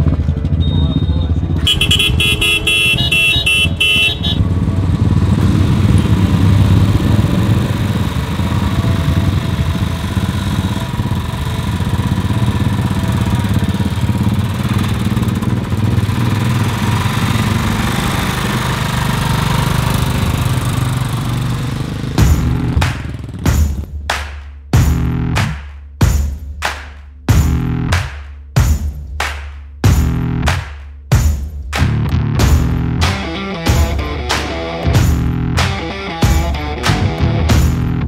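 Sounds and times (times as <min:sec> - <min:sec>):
road and wind noise: 0:00.0 - 0:23.6
motorcycle engine drone: 0:00.0 - 0:23.9, 0:32.1 - 0:38.0.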